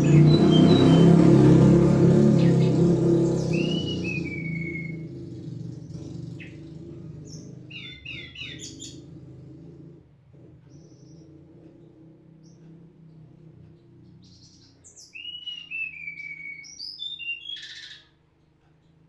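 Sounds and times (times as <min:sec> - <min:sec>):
bird whistling: 0:00.0 - 0:01.6, 0:02.4 - 0:05.2, 0:07.2 - 0:09.0, 0:14.2 - 0:18.2
high bird chirps: 0:00.0 - 0:09.1, 0:14.1 - 0:18.2
low hum: 0:00.0 - 0:16.6.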